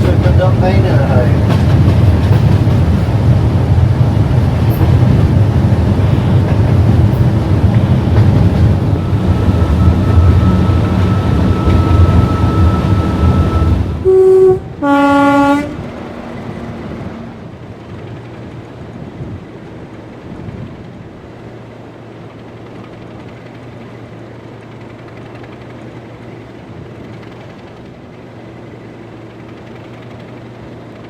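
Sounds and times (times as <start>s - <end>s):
locomotive diesel engine: 0.0s - 31.0s
two-tone train horn: 8.8s - 15.9s.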